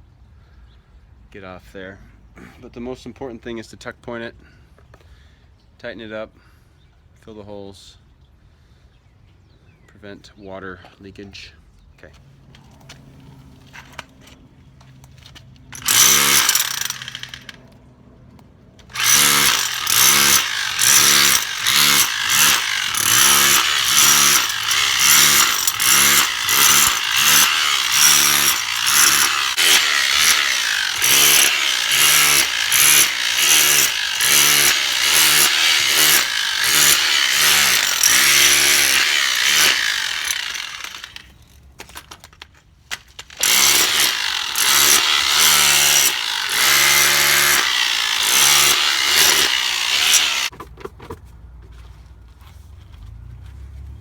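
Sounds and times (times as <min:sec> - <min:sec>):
power tool raking mortar: 0:15.7 - 0:17.6, 0:18.9 - 0:41.4, 0:43.2 - 0:50.6.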